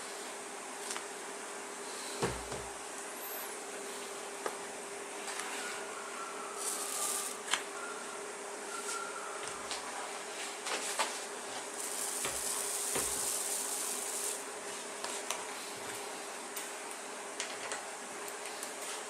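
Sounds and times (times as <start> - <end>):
steady buzzing hum: 0.0 - 5.3, 6.0 - 8.7, 10.0 - 18.8
bright hiss: 6.5 - 7.5, 11.7 - 14.5.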